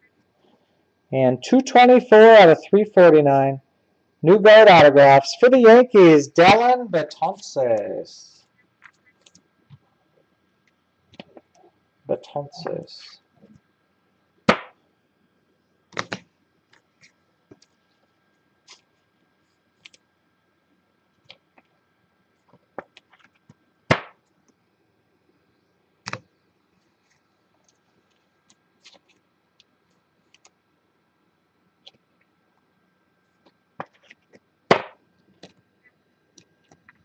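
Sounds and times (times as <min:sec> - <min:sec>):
cards clicking and tapping: 0:16.0 - 0:16.3, 0:33.4 - 0:35.6.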